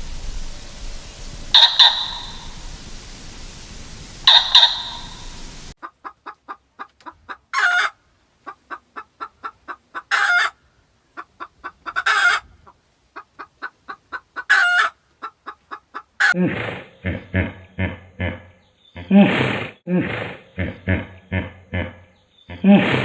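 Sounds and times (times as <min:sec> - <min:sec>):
chicken cackling: 0:01.5 - 0:02.8, 0:04.2 - 0:19.1
loud call: 0:01.5 - 0:03.0, 0:04.2 - 0:05.6.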